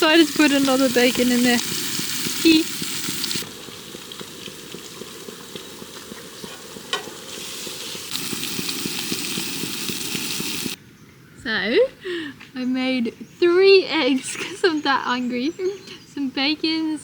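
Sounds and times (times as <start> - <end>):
bacon sizzling in a frying pan: 0.0 - 10.8.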